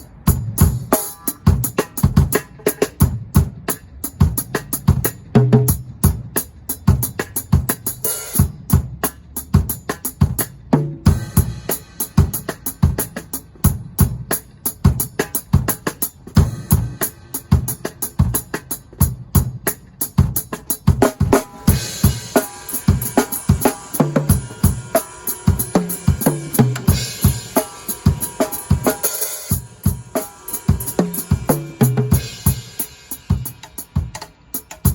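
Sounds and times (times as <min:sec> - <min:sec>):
drum kit groove: 0:00.0 - 0:34.9
crashing cymbals: 0:21.5 - 0:34.0.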